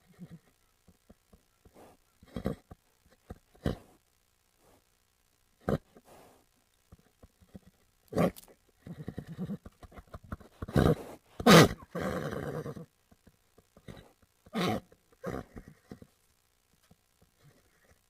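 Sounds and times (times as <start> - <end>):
horse snorting: 1.7 - 3.9, 7.4 - 12.9.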